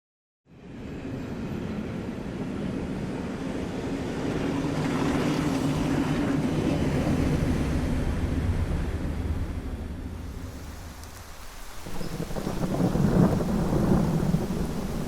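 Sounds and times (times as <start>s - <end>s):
train running on tracks: 0.6s - 11.0s.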